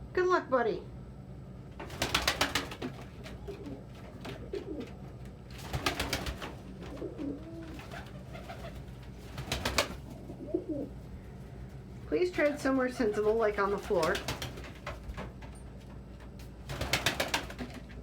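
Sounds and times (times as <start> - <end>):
pigeons cooing: 2.3 - 11.0.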